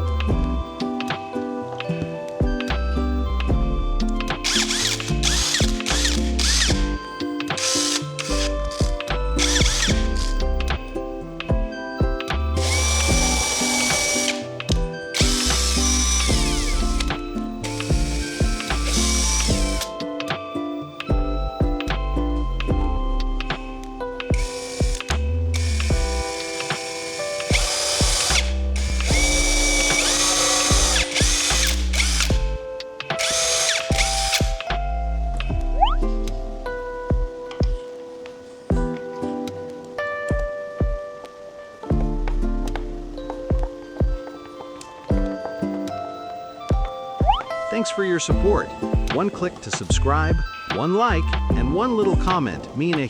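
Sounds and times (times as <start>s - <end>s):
background music with steady beat: 0.0s - 53.0s
power tool whirring: 4.4s - 10.4s, 12.4s - 20.0s, 24.3s - 32.6s, 33.2s - 34.7s.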